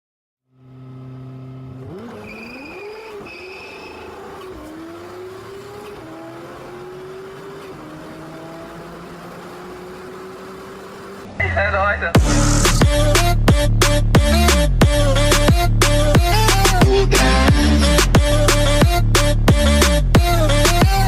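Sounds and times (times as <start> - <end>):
car engine revving and accelerating: 0.6 - 11.4.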